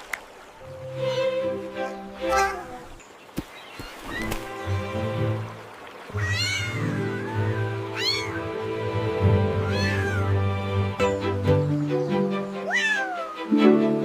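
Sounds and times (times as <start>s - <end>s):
background music: 0.6s - 3.0s, 4.3s - 14.0s
cartoon cat meowing: 6.2s - 8.4s, 9.6s - 10.3s, 12.7s - 13.5s.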